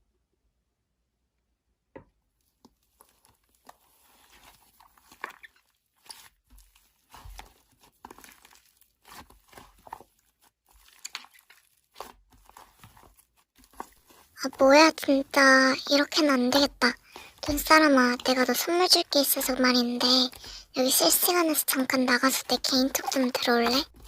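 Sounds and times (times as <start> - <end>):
slime squished by hand: 2.4 - 19.2.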